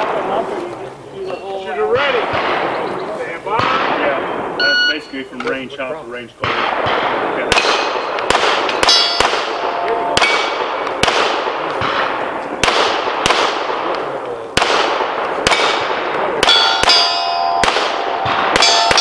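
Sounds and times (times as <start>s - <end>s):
steel target ringing: 7.5s - 11.0s, 16.4s - 19.0s
handgun shots: 14.6s - 19.0s.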